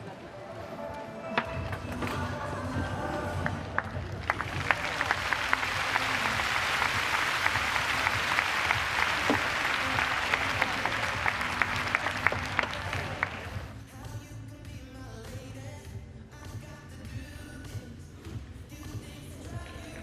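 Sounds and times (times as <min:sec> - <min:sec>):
audience applauding: 0:03.4 - 0:13.7.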